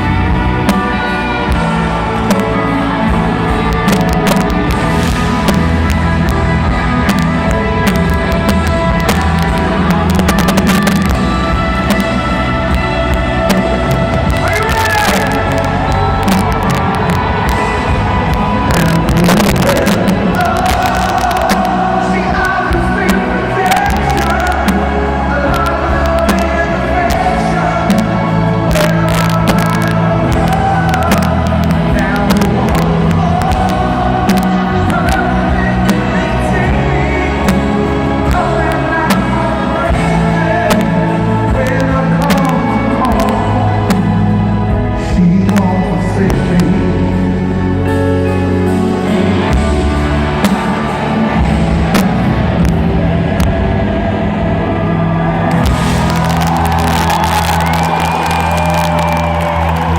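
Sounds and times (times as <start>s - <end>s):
live concert music: 0.0s - 59.9s
fireworks bangs and crackles: 3.8s - 12.2s.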